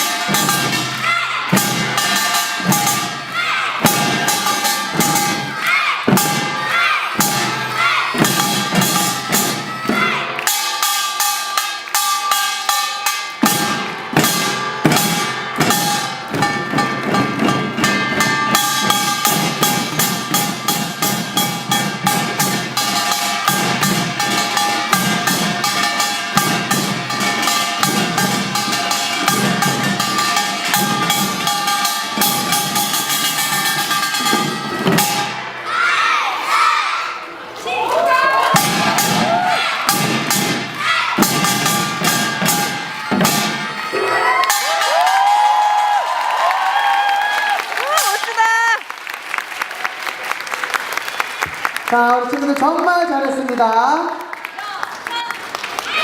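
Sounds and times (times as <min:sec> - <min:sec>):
gongs ringing: 0:00.0 - 0:35.6, 0:38.5 - 0:45.6
drums beating fast rhythm: 0:00.0 - 0:35.7, 0:38.1 - 0:48.8.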